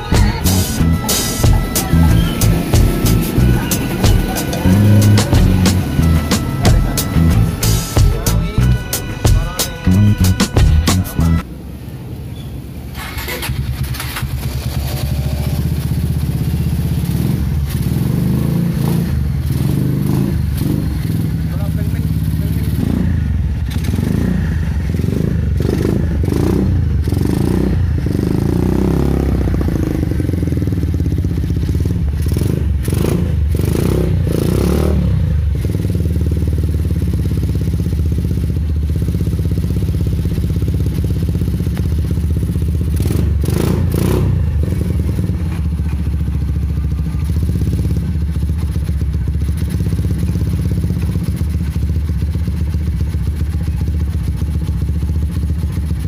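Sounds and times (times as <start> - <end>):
motorcycle engine running: 0.0 - 12.1, 12.8 - 56.0.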